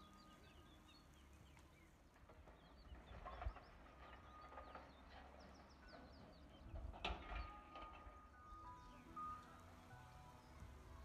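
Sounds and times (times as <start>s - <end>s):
birdsong chirps and whistles: 0.0s - 11.0s.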